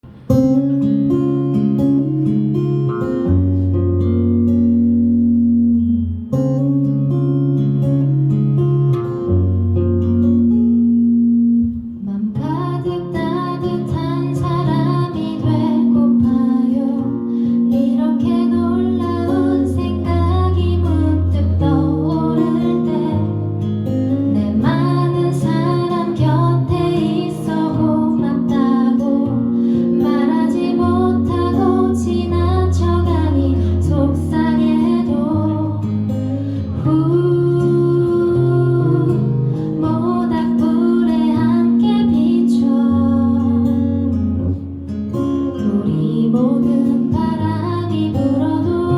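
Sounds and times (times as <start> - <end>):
acoustic guitar playing: 0.0 - 48.9
person singing: 17.8 - 23.5, 24.1 - 43.8.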